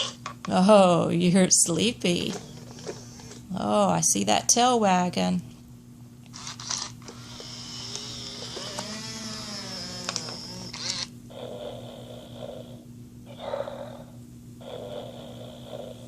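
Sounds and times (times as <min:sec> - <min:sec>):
toy dog high-pitched whine: 0:06.4 - 0:11.1
toy dog snoring: 0:06.4 - 0:16.0.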